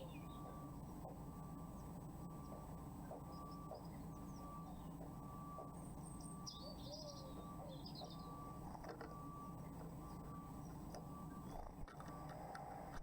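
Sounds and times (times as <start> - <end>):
songbirds chirping: 0.0 - 12.3
electrical hum and whine: 0.0 - 13.0.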